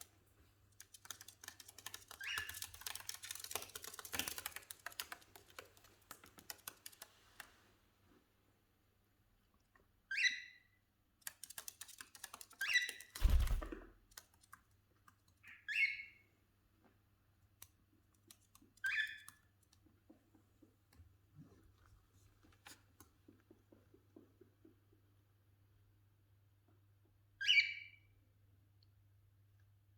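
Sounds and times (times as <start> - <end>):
beaks pecking clicks: 0.8 - 7.1, 11.2 - 15.4
cockatiel chirps: 2.2 - 2.7, 10.1 - 10.7, 15.4 - 16.2, 18.8 - 19.3, 27.4 - 28.1.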